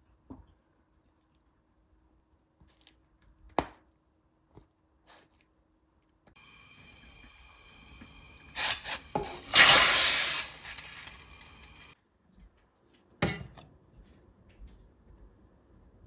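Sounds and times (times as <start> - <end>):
loud hissing rush: 8.4 - 11.9.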